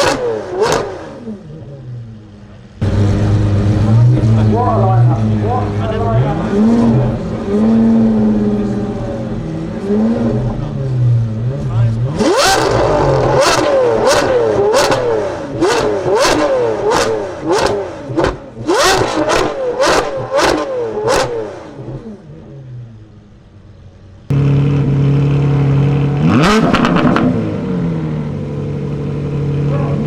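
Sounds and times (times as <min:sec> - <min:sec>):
car engine revving: 0:00.0 - 0:30.0
car engine idling: 0:00.6 - 0:30.0
exhaust cracks: 0:02.8 - 0:08.7, 0:24.3 - 0:30.0.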